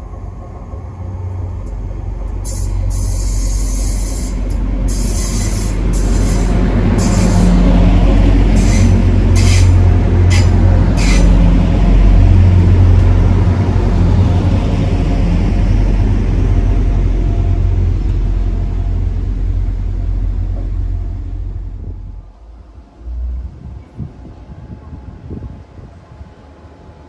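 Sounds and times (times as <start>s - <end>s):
train passing rumble: 0.0s - 27.0s
wheels hissing on rail: 1.6s - 15.8s.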